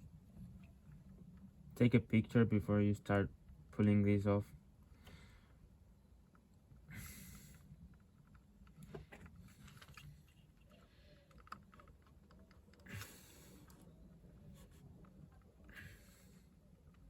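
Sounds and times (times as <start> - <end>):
plastic clicks and fiddling: 8.0 - 12.9.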